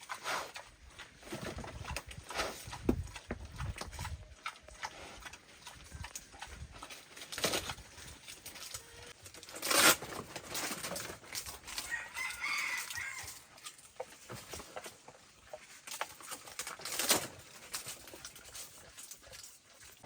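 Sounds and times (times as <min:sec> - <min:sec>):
rooster crowing: 0:11.8 - 0:13.4.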